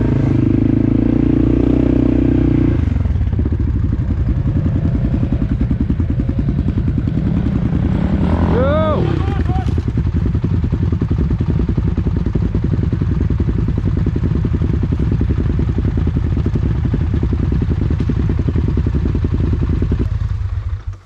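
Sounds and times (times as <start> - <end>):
atv engine chugging: 0.0 - 21.0.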